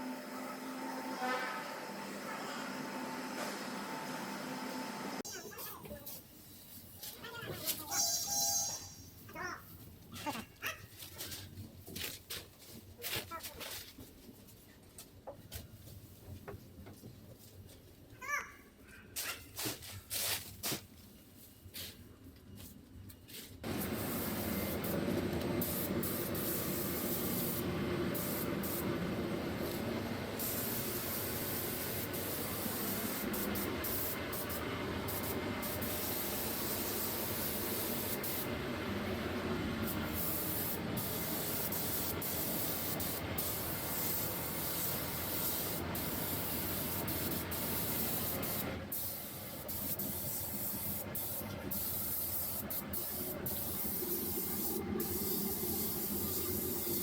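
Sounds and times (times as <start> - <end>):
paint spray gun hissing: 25.6 - 29.0, 30.4 - 38.5, 39.8 - 57.0.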